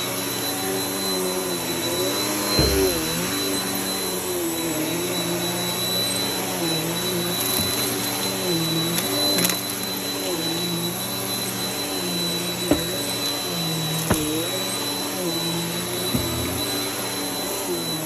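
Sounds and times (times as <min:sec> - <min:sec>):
vacuum cleaner running: 0:00.0 - 0:18.0
short knock: 0:02.6 - 0:03.4, 0:12.7 - 0:13.0.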